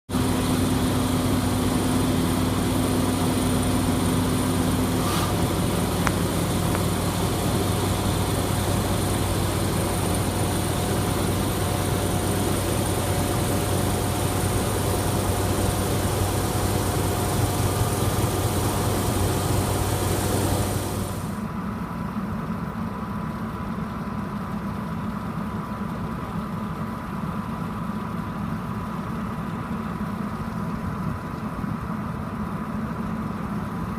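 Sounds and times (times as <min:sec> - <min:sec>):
vehicle engine idling: 0:00.1 - 0:33.9
high hiss: 0:00.2 - 0:21.4.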